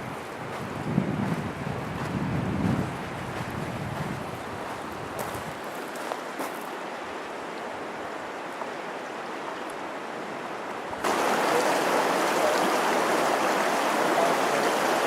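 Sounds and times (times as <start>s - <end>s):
wind noise: 0.0s - 5.7s
rushing water: 2.7s - 15.0s.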